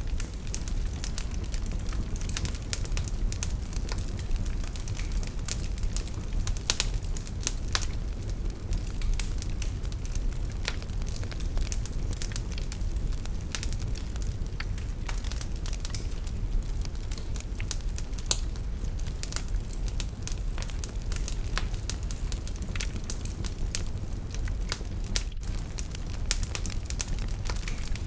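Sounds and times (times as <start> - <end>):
fire crackling and popping: 0.0 - 28.0
fire rumbling in fireplace: 0.0 - 28.0.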